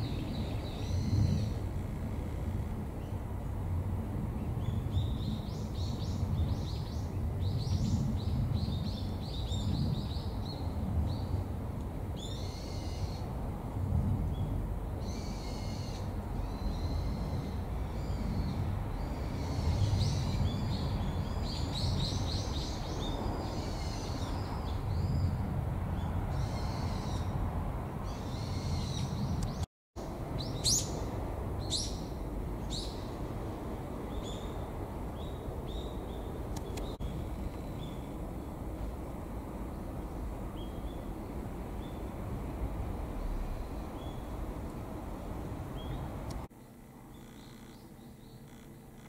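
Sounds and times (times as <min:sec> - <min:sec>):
songbirds chirping and trilling: 0:00.0 - 0:03.4, 0:14.3 - 0:49.0
steady low rumble: 0:00.0 - 0:12.2.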